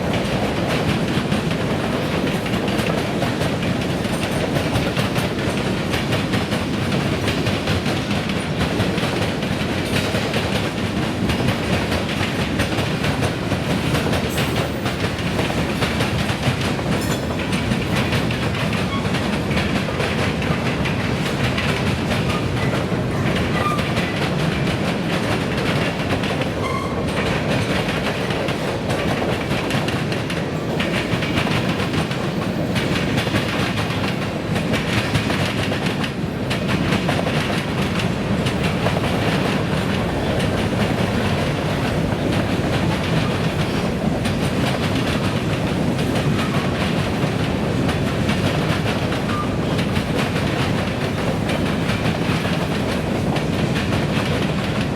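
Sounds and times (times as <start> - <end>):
freight train rumbling past: 0.0 - 54.9
wheels clacking on rail joints: 0.0 - 54.9.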